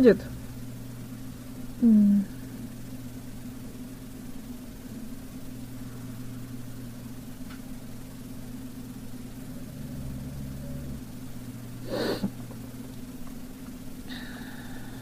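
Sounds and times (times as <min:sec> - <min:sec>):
low electrical hum: 0:00.0 - 0:15.0
sharp breath or sniff: 0:11.9 - 0:12.3.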